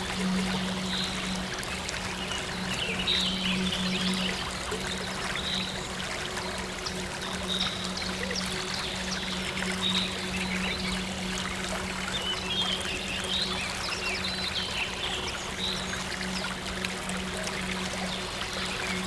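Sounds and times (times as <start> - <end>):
soft synth drone: 0.0 - 19.0
stream water running: 0.0 - 19.0.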